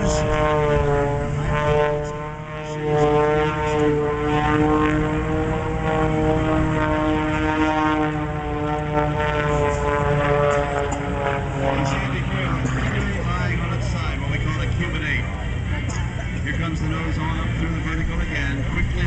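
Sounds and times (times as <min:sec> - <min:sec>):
propeller airplane engine at high power: 0:00.0 - 0:19.0.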